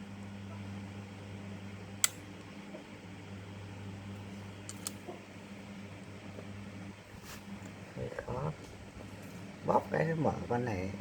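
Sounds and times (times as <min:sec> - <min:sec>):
steady low hum: 0:00.0 - 0:11.0
pliers metal clicks: 0:04.7 - 0:05.0.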